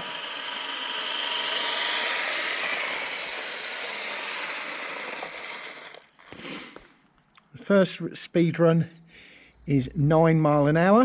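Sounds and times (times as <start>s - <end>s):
electric motor whining: 0.0s - 6.9s.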